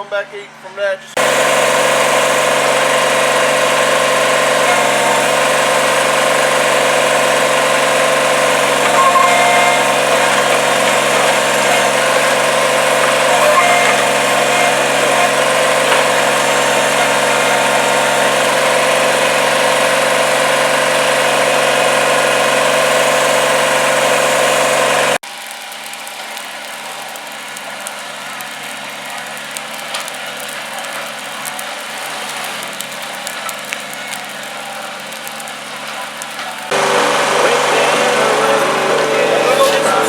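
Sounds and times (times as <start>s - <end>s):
engine running steadily: 1.2s - 25.2s, 26.9s - 40.0s.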